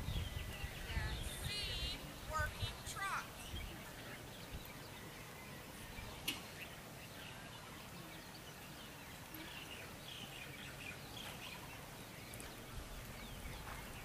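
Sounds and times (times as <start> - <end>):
faint background noise: 0.0 - 14.0
small birds chirping: 0.0 - 14.0.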